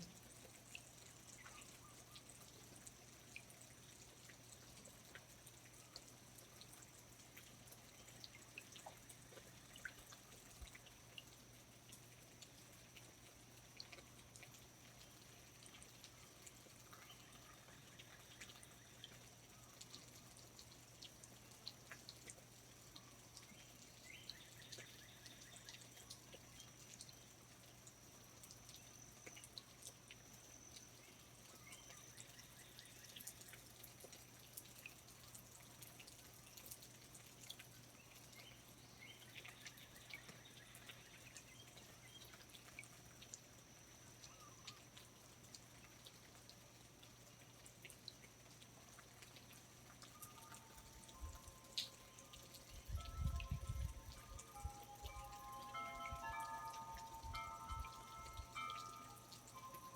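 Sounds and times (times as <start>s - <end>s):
water drips ticking: 0.0s - 59.9s
thin high tone: 50.1s - 59.9s.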